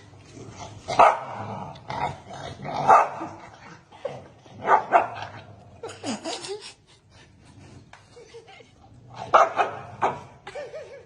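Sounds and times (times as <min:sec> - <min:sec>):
dog barking: 0:01.0 - 0:01.3, 0:02.9 - 0:03.2, 0:04.6 - 0:05.2, 0:09.3 - 0:10.2.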